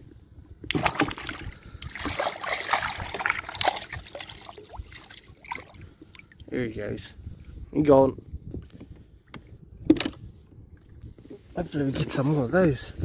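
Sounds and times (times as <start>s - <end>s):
water splashing and trickling: 0.6s - 7.1s.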